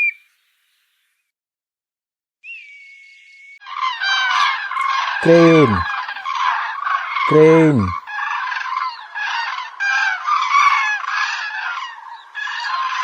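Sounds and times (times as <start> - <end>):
cranes calling: 3.6 - 13.0.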